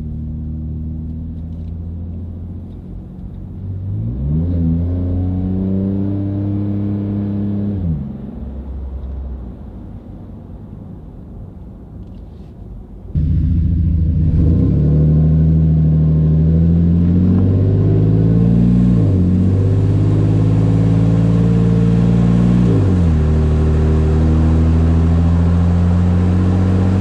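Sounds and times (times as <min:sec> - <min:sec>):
truck engine heard from inside cab: 0:12.0 - 0:27.0.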